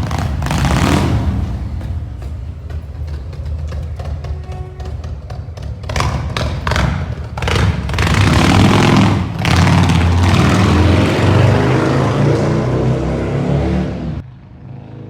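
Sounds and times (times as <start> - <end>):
motorcycle engine loud exhaust: 0.0 - 15.0.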